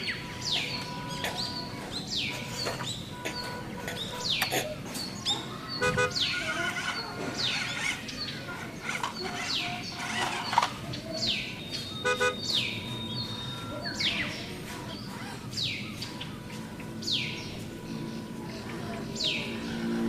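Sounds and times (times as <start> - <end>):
harsh buzzy bird call: 0.0 - 14.2.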